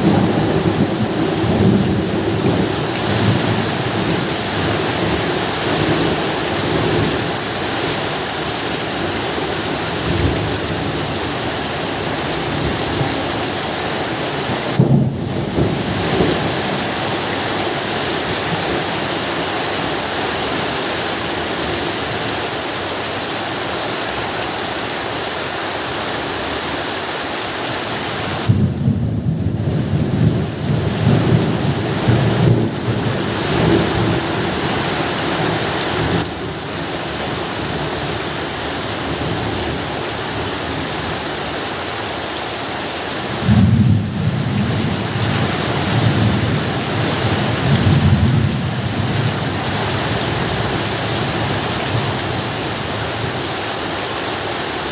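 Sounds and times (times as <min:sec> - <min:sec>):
thunder rumbling: 0:00.0 - 0:07.4, 0:14.5 - 0:18.8, 0:28.4 - 0:36.6, 0:43.3 - 0:50.9
heavy rain: 0:00.0 - 0:54.9.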